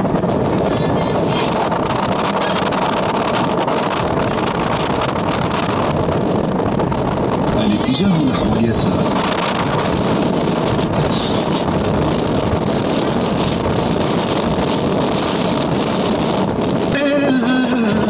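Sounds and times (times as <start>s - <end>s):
loud rushing noise: 0.0s - 18.0s
man singing: 16.9s - 18.0s.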